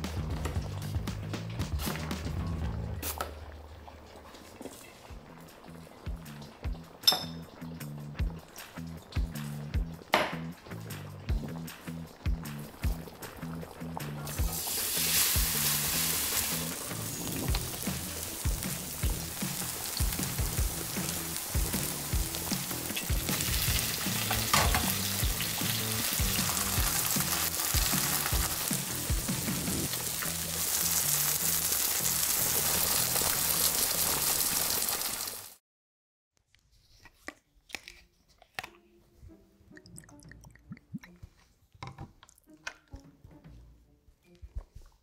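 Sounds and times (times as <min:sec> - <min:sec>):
tableware clinking: 0:07.0 - 0:07.5, 0:24.3 - 0:25.0
pancake sizzling in hot oil: 0:14.4 - 0:35.6
liquid pouring into shot glass: 0:39.7 - 0:41.4.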